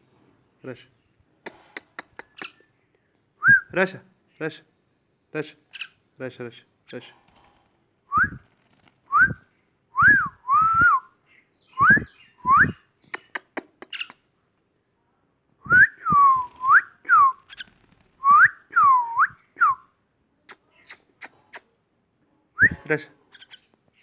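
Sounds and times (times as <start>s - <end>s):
sharp clicks: 1.5s - 2.6s, 13.2s - 14.2s.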